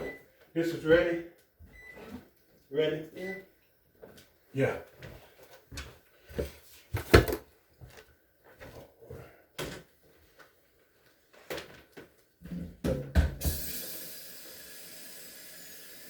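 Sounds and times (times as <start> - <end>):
knocks and clunks of handling: 6.4 - 8.0.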